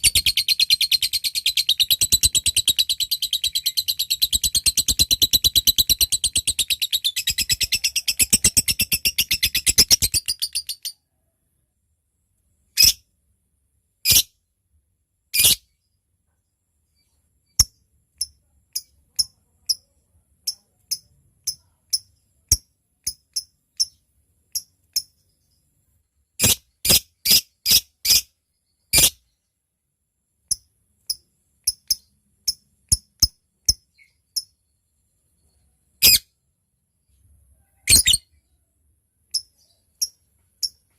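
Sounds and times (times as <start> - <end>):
bird ticking chirps: 0.0 - 11.0, 17.5 - 25.4, 30.5 - 34.7, 39.3 - 40.9
lovebird chattering trill: 0.0 - 11.0, 37.8 - 38.2.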